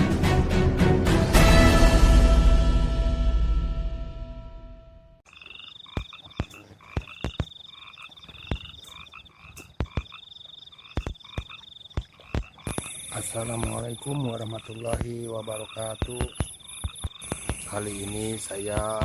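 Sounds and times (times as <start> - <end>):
frogs calling: 5.2 - 19.0
pulsing high insect trill: 5.3 - 19.0
sharp clicks or knocks: 10.9 - 13.9.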